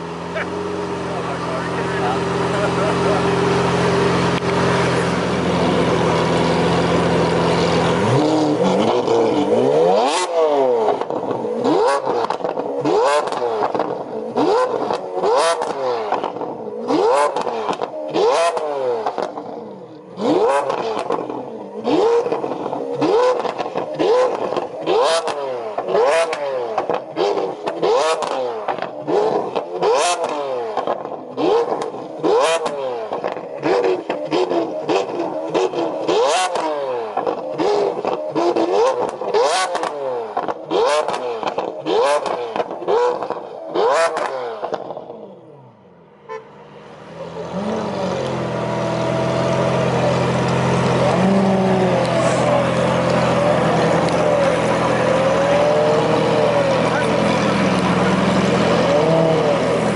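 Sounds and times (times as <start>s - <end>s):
car engine revving: 0.0s - 59.9s
exhaust pops and crackles: 22.2s - 44.9s, 51.8s - 55.5s.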